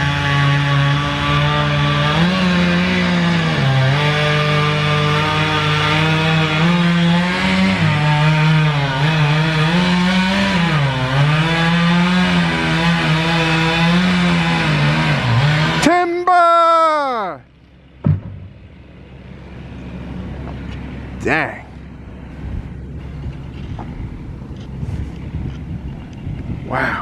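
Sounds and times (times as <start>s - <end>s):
chainsaw running hard: 0.0s - 16.0s.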